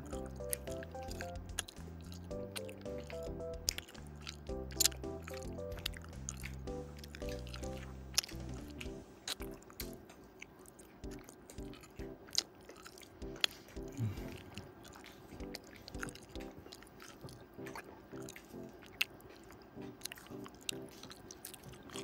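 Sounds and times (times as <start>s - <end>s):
soft music with a steady beat: 0.0s - 10.1s, 11.0s - 12.3s, 13.2s - 14.6s, 15.4s - 16.6s
person chewing and crunching: 0.0s - 22.0s.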